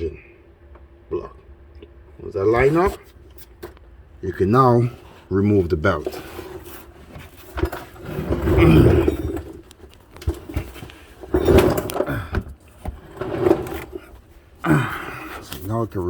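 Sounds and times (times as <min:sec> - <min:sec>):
metal tools clinking and rattling: 0:06.0 - 0:14.2.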